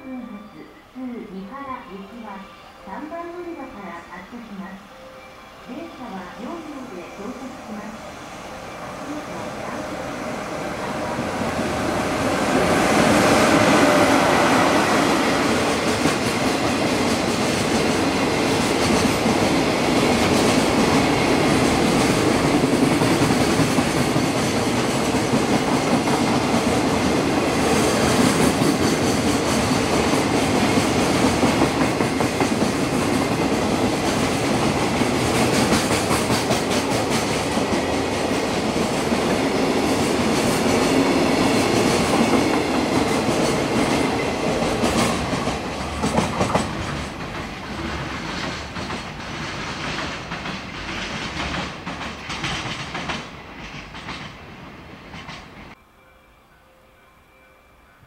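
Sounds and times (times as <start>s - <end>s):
freight train passing: 0.0s - 58.0s
wheels clacking over rail joints: 40.3s - 54.5s.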